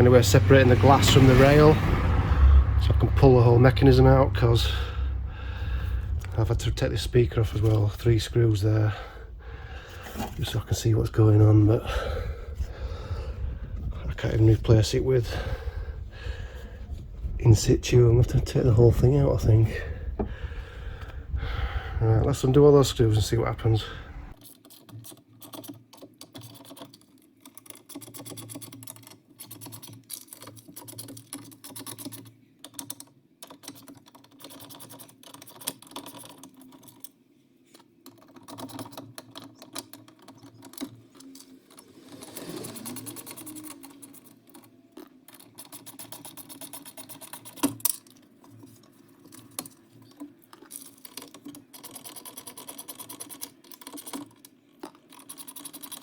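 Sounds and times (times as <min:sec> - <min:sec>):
low hum: 0:00.0 - 0:21.9, 0:23.0 - 0:24.4
tools clicking and rattling: 0:38.0 - 0:56.0.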